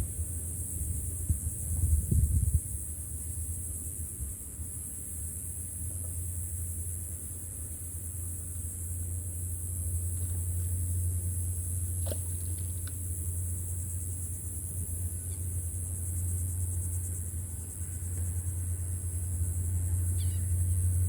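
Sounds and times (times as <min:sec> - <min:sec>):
short chirp: 0:20.2 - 0:20.5.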